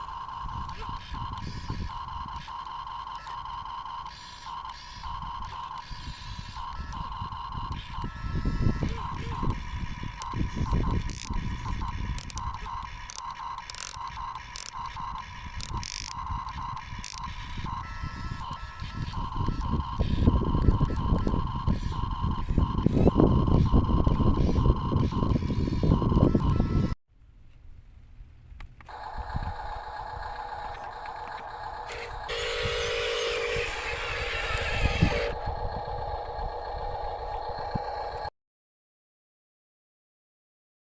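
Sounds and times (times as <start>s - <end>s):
electric motors whirring: 0.0s - 27.0s, 28.9s - 38.3s
louder hissing whir: 28.9s - 38.2s.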